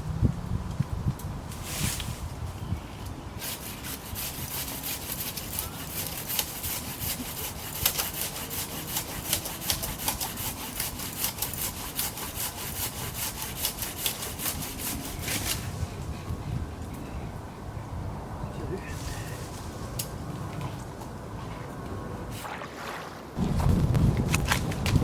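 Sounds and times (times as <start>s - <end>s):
hand saw cutting branches: 3.4s - 16.1s.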